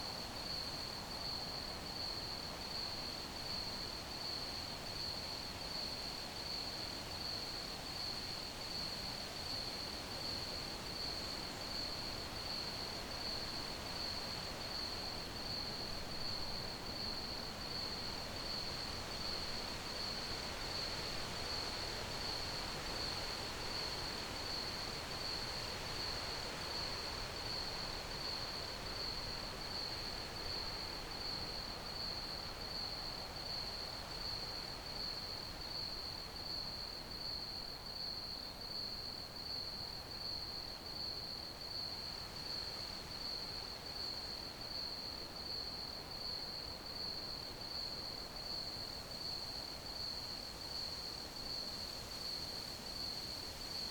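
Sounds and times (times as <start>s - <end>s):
background hiss: 13.2s - 53.9s
crickets chirping: 28.2s - 53.9s.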